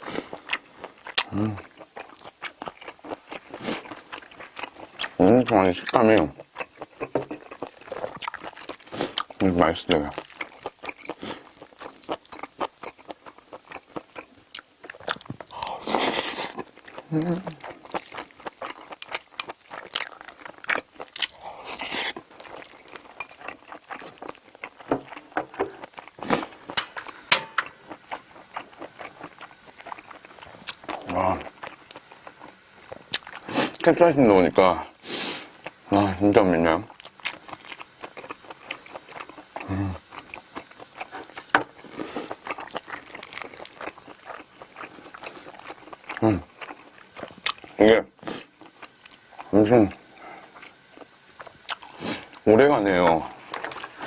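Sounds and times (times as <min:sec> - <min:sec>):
chewing and mouth smacking: 0:00.0 - 0:34.0, 0:36.9 - 0:52.4, 0:53.3 - 0:54.0.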